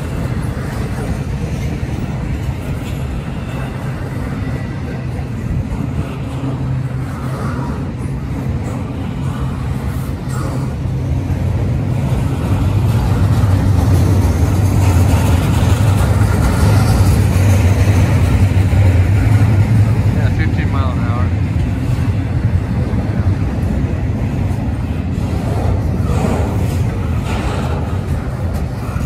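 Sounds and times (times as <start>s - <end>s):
steel wheels rumbling on rails: 0.0s - 29.0s.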